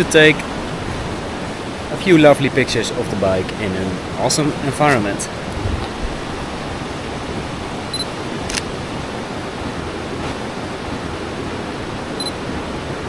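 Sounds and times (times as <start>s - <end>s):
river rushing: 0.0s - 13.0s
camera focus beep: 7.9s - 8.7s, 12.2s - 12.4s
camera shutter click: 8.4s - 8.7s.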